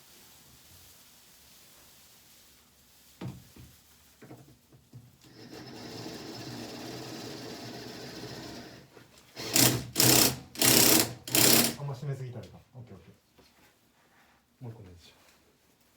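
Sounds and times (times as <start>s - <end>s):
impact driver hammering: 9.4s - 11.8s
impact driver whirring: 9.4s - 11.8s.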